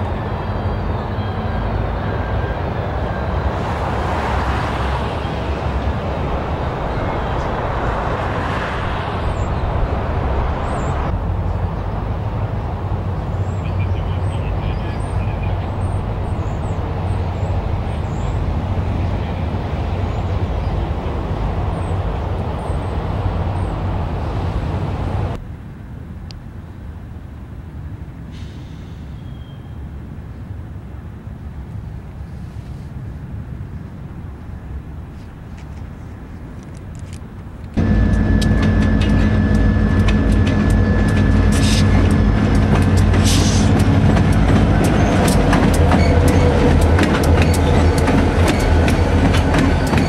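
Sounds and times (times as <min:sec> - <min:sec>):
train cars rumbling on rails: 0:00.0 - 0:25.4, 0:35.4 - 0:50.0.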